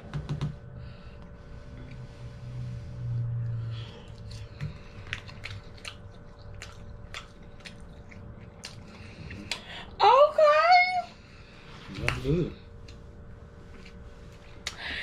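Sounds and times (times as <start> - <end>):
low hum: 0.0 - 15.0
people chewing soft food: 1.1 - 10.0, 11.5 - 15.0
wet lip smacks: 4.1 - 9.6.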